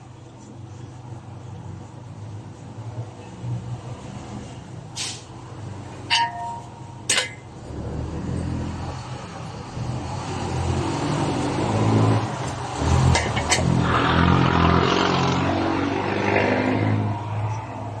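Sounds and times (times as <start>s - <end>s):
vehicle engine rumble: 0.0s - 18.0s
sharp metallic clinks: 6.0s - 7.6s.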